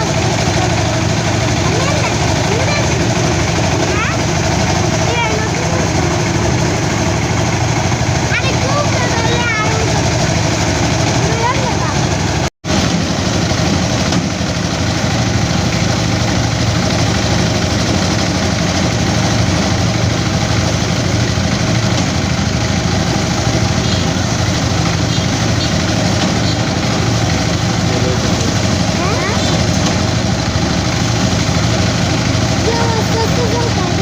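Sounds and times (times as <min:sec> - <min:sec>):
low engine hum: 0:00.0 - 0:34.0
threshing machine running: 0:00.0 - 0:34.0.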